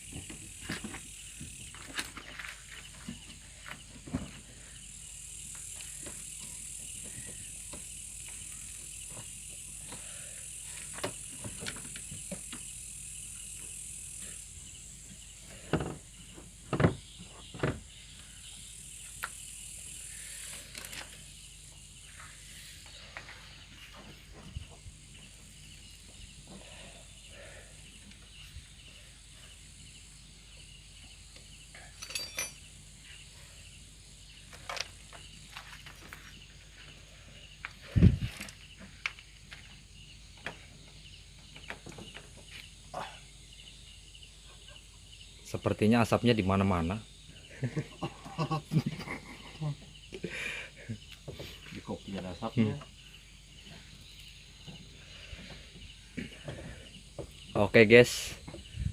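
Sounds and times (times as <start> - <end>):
insects chirring: 0.0 - 58.9
loud knocks of metal parts: 32.0 - 32.6.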